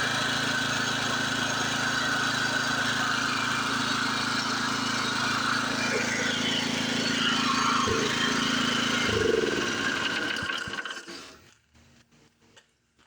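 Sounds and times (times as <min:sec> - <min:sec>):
small engine running: 0:00.0 - 0:11.5.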